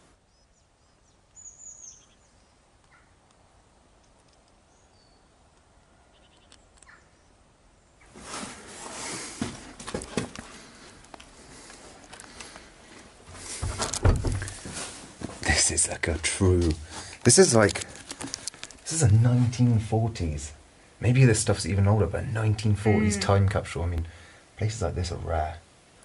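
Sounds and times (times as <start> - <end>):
rustling close by: 8.0 - 19.8
knocks of movement: 11.6 - 15.6.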